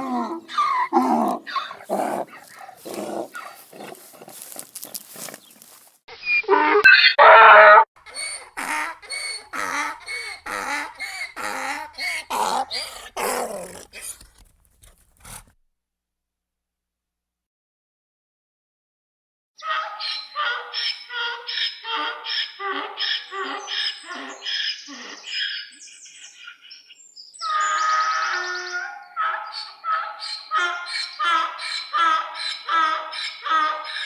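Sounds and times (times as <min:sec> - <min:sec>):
donkey braying: 0:00.0 - 0:05.4, 0:07.2 - 0:15.5, 0:19.6 - 0:25.7, 0:27.4 - 0:34.0.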